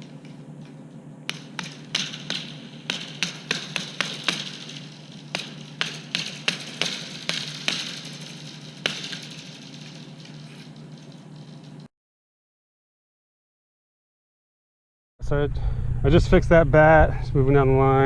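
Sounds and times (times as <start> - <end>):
hammer striking: 0.0 - 11.9
steady low hum: 0.0 - 11.9, 15.2 - 18.0.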